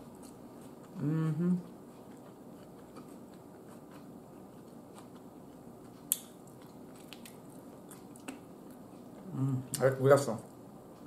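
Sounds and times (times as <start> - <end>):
wet chewing of meat: 1.7 - 9.3.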